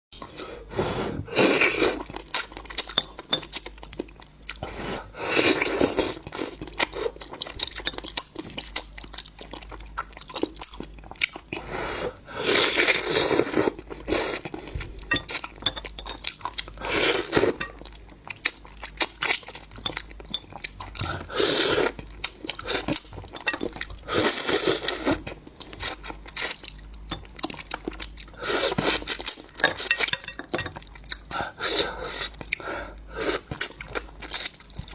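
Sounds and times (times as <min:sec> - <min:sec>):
crunching and chewing: 0:05.6 - 0:11.6, 0:12.7 - 0:31.3, 0:33.3 - 0:34.9
dishes and utensils clinking: 0:15.0 - 0:16.4, 0:29.6 - 0:30.9.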